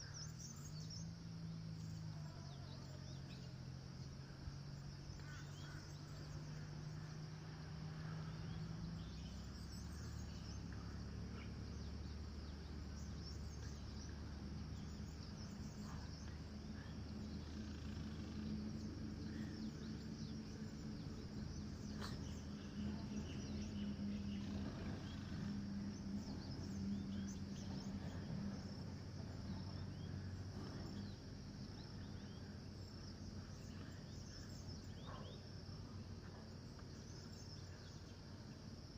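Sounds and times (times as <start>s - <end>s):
low hum: 0.0s - 38.6s
insects chirring: 0.0s - 38.9s
bird chirps: 8.4s - 28.8s, 29.4s - 35.4s.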